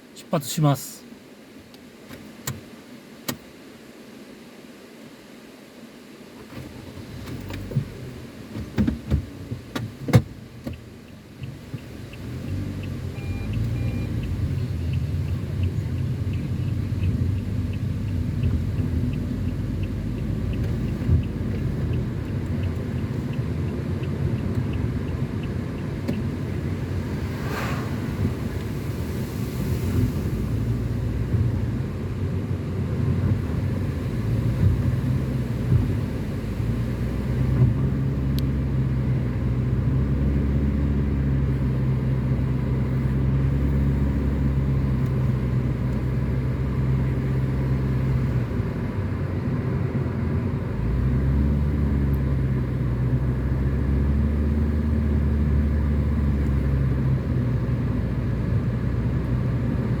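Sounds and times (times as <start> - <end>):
car engine hum: 0.0 - 60.0
tyre and road noise: 6.6 - 38.6.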